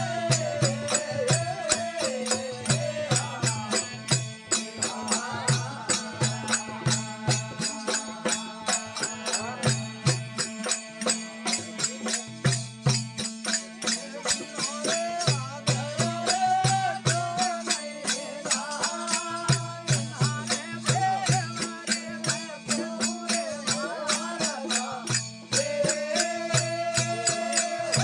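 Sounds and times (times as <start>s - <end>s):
hand percussion beat: 0.0s - 28.0s
person singing devotional melody: 0.0s - 28.0s.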